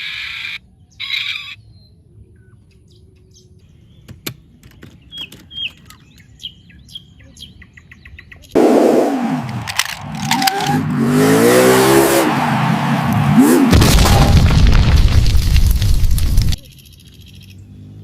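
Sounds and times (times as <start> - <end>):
faint bird chirps: 0.0 - 8.6, 16.6 - 18.0
loud rushing noise: 8.6 - 16.6.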